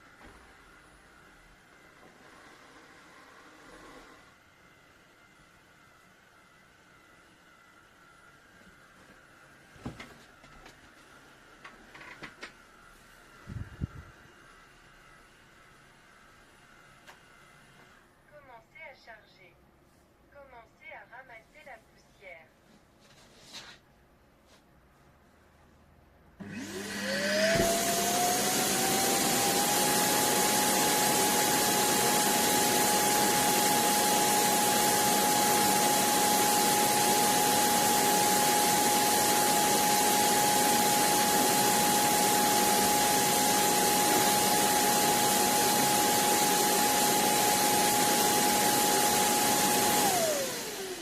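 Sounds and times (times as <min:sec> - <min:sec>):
vacuum motor whine: 0:26.4 - 0:51.0.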